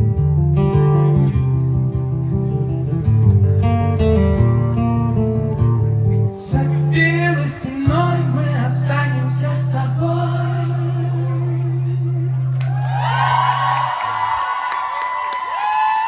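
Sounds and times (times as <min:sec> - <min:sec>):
acoustic guitar: 0:00.0 - 0:14.3
person singing wordlessly: 0:06.4 - 0:12.6.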